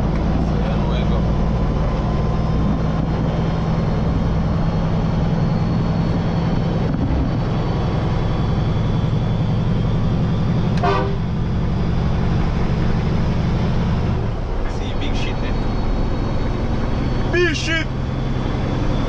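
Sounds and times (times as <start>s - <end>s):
truck diesel engine running: 0.0s - 19.0s
truck horn toot: 10.7s - 11.4s.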